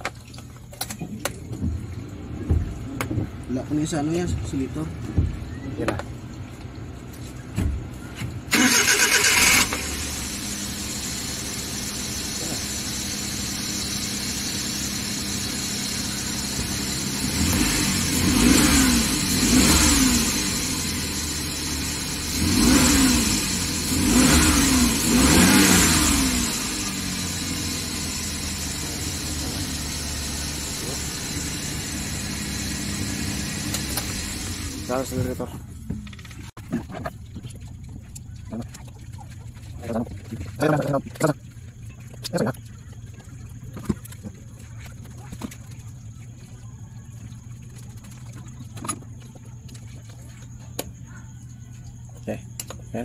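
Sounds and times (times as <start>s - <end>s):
van engine idling: 1.2s - 53.0s
starter cranking: 8.5s - 10.0s
engine revving: 8.5s - 35.5s.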